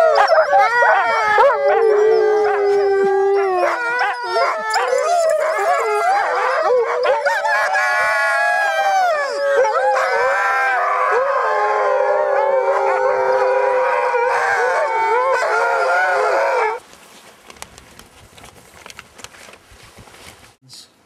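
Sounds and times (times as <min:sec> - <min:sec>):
dogs howling: 0:00.0 - 0:16.8
faint clicks and rustling: 0:16.8 - 0:20.6.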